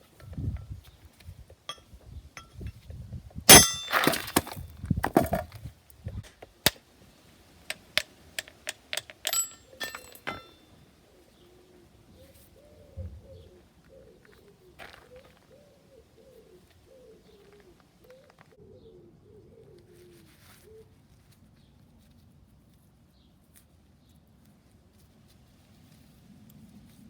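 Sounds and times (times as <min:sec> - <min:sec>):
metal clanging and clinking: 0:03.5 - 0:05.5, 0:07.7 - 0:10.7
pigeon cooing: 0:11.1 - 0:21.0.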